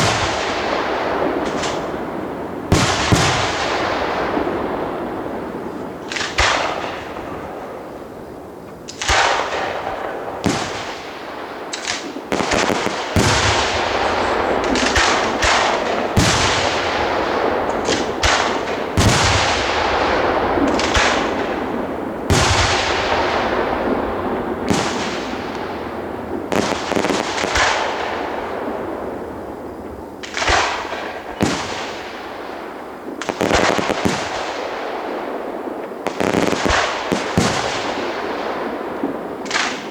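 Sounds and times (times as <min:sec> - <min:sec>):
firework shells bursting: 0:00.0 - 0:07.9, 0:08.7 - 0:28.7
crackling hissing fireworks fall-off: 0:01.4 - 0:02.0.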